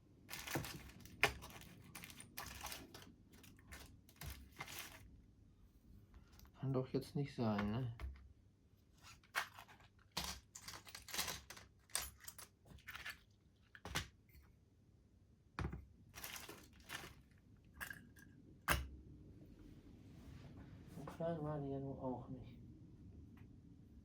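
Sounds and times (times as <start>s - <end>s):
small parts rummaged on workbench: 0.3s - 5.1s, 9.0s - 14.5s, 15.6s - 18.3s.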